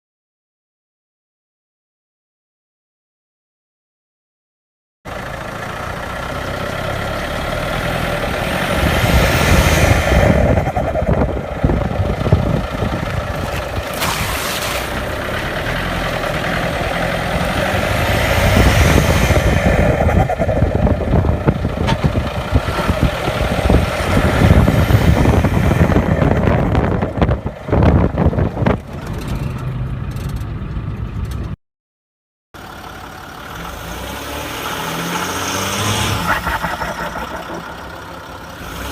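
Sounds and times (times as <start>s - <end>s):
engine idling: 5.1s - 8.9s, 10.2s - 18.0s, 19.4s - 31.5s, 32.6s - 33.8s, 36.3s - 38.9s
diesel engine revving: 5.1s - 31.6s, 32.6s - 38.9s.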